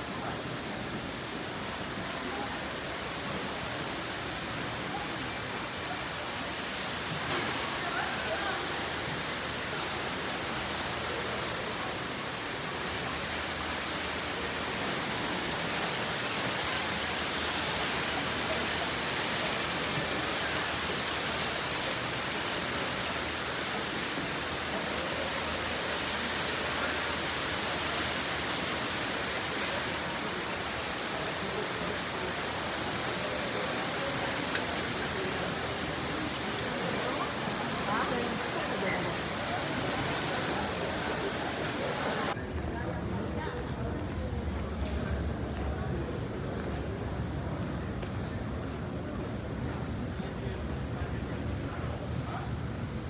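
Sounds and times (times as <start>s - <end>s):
airliner cabin noise: 13.0s - 46.1s.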